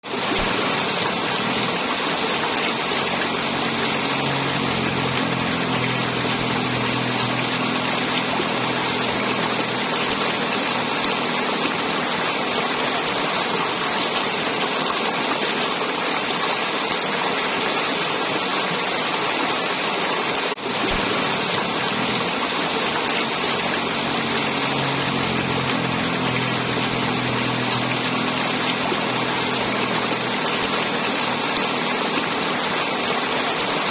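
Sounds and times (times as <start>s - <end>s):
river water gurgling over rocks: 0.0s - 33.9s
low hum: 0.1s - 13.2s, 20.6s - 33.9s.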